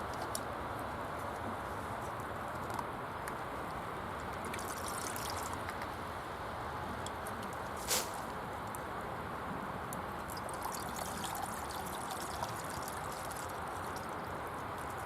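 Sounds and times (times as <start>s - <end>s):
running water rushing: 4.4s - 6.4s, 10.1s - 15.0s.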